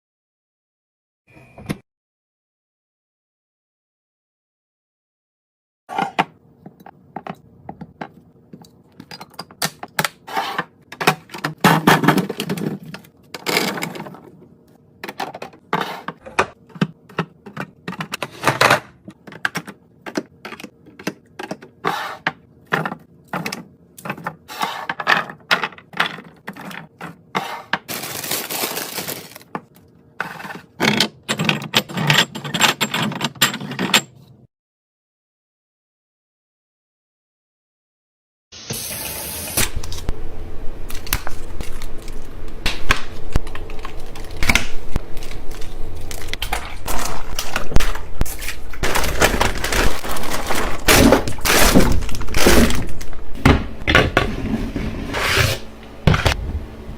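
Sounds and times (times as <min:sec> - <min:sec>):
packaging rustling: 0:27.9 - 0:29.7, 0:43.2 - 0:53.3.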